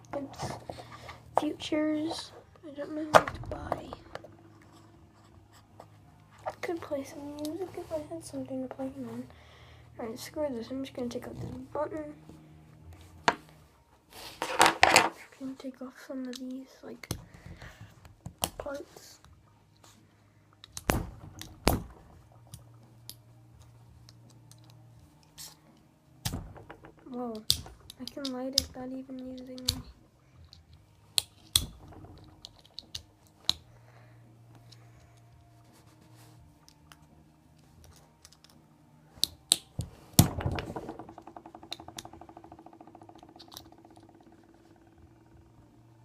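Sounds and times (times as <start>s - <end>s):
small part rattling: 40.2s - 45.6s.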